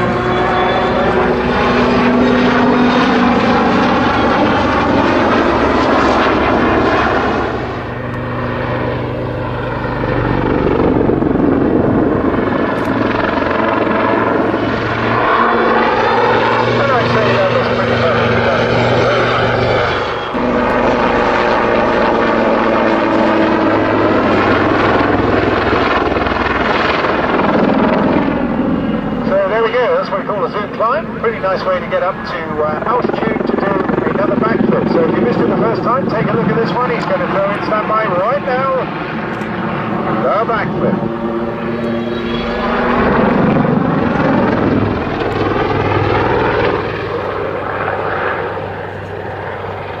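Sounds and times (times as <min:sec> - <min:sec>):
helicopter rotors and engines: 0:00.0 - 0:50.0.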